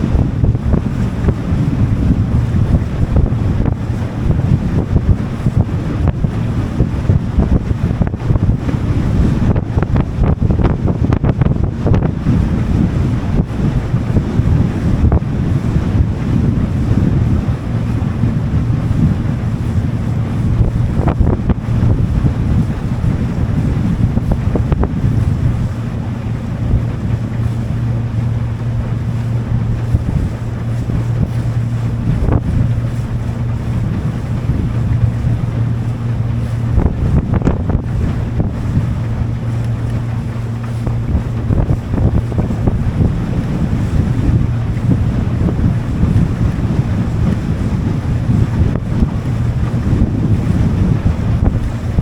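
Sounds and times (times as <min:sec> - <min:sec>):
boat engine running: 0:00.0 - 0:52.0
water rushing past hull: 0:00.0 - 0:52.0
wind buffeting microphone: 0:00.0 - 0:52.0.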